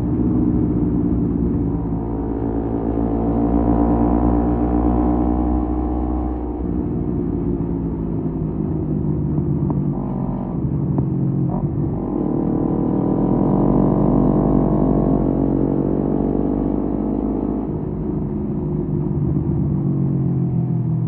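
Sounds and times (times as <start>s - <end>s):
motorcycle engine revving: 8.8s - 17.9s.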